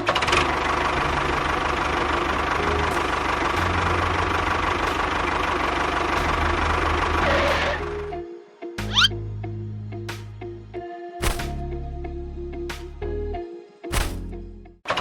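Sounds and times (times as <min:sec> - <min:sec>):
engine knocking rattle: 0:00.0 - 0:07.8.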